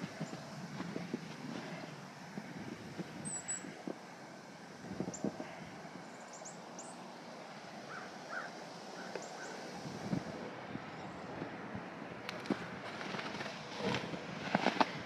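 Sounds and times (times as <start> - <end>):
low bird calls: 0.0 - 3.9, 7.8 - 9.8
birds chirping: 0.0 - 11.5
outdoor background hiss: 0.0 - 15.0.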